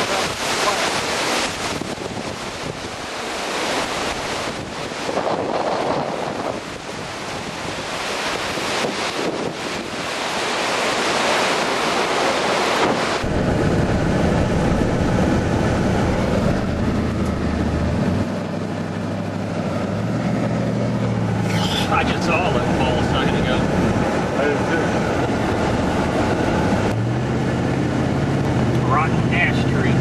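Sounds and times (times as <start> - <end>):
wind buffeting microphone: 0.0 - 28.9
vehicle engine humming: 11.9 - 30.0.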